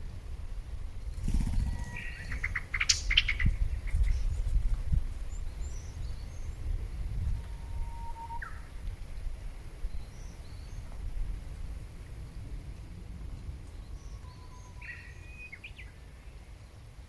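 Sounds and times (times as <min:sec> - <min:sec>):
low steady rumble: 0:00.0 - 0:17.0
songbird singing: 0:00.8 - 0:16.9
faint bird chirps: 0:01.4 - 0:04.5, 0:07.2 - 0:10.9, 0:13.7 - 0:16.5.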